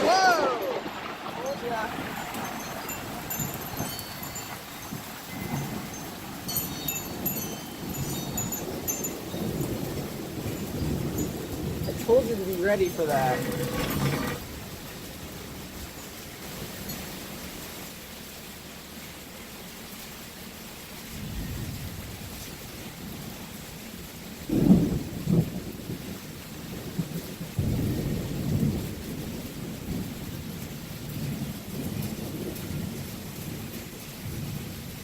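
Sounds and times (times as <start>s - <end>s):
thunder rumbling: 0.0s - 15.9s, 24.4s - 35.0s
steady rain: 0.0s - 35.0s.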